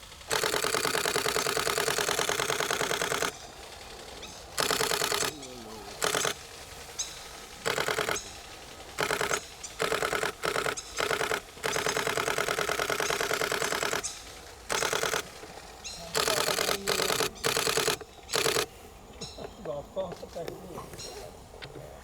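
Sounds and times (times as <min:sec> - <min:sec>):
camera shutter clicking in bursts: 0:00.0 - 0:21.8.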